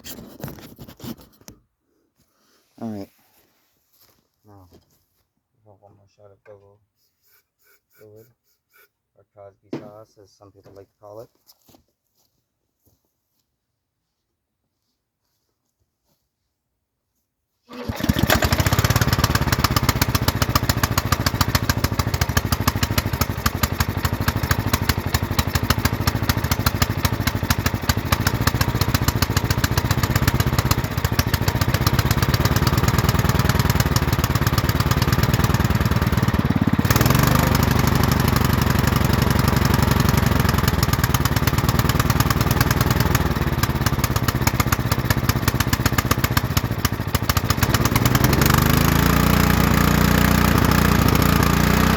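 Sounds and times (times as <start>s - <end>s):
small petrol engine running: 17.7s - 51.9s.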